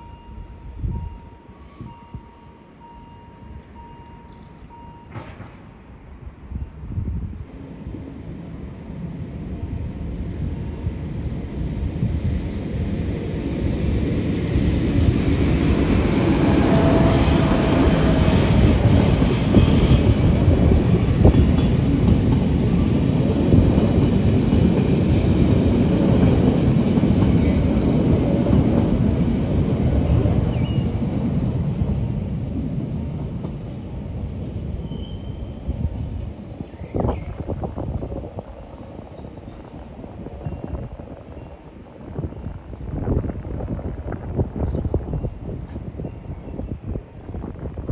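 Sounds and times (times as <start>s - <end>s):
train wheels squealing: 0.0s - 5.2s, 14.7s - 20.2s, 34.8s - 38.0s
train rumbling past: 0.0s - 47.9s.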